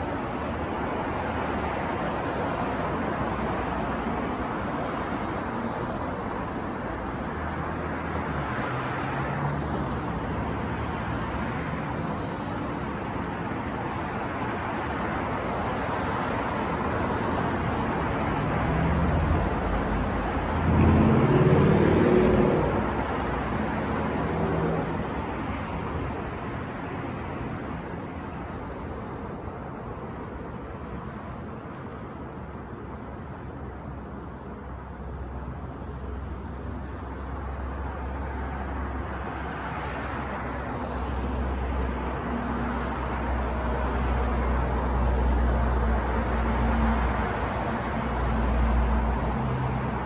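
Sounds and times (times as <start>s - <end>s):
passing car traffic: 0.0s - 50.0s
vehicle engine passing close: 18.8s - 25.1s.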